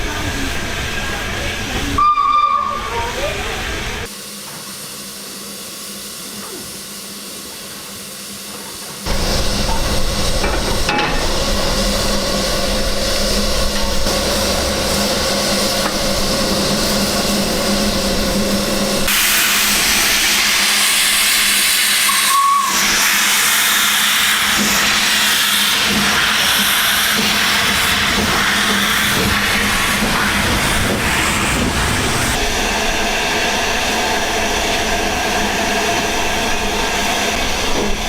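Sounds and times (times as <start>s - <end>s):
steam hissing: 0.0s - 38.0s
steam whistle toot: 2.0s - 3.1s, 21.9s - 23.2s.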